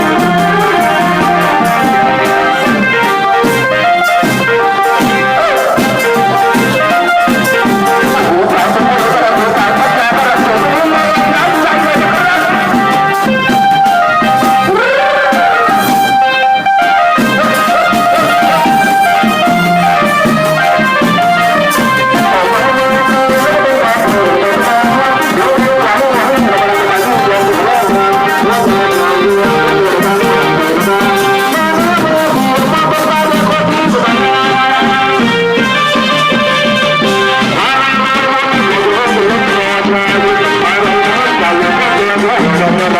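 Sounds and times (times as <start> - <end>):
brass band playing: 0.0 - 42.9.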